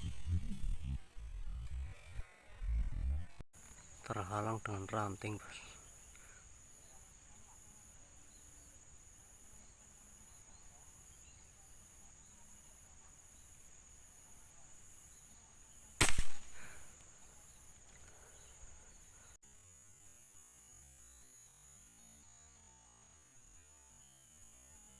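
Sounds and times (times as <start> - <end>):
insects buzzing: 0.0 - 24.9
air rifle shot: 16.0 - 16.9.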